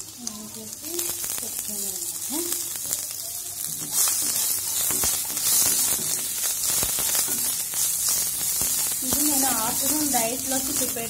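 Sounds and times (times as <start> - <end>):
food sizzling in oil: 0.0 - 11.0
spatula tapping and scraping pan: 3.7 - 10.8.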